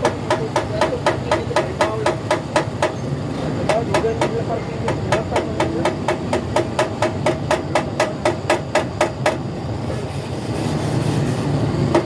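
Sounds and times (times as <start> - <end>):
hammer tapping on metal: 0.0 - 3.0, 3.6 - 9.5.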